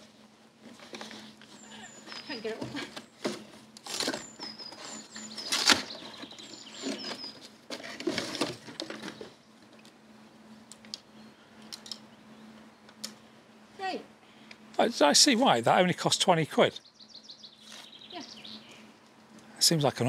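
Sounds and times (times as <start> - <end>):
packaging rustling and tearing: 3.1 - 9.3.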